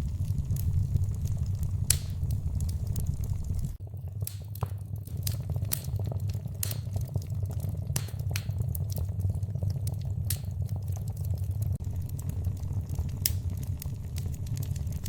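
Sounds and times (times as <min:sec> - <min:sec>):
low rumble of flames: 0:00.0 - 0:15.0
wood fire crackling: 0:00.0 - 0:15.0
sharp pops: 0:01.9 - 0:02.2.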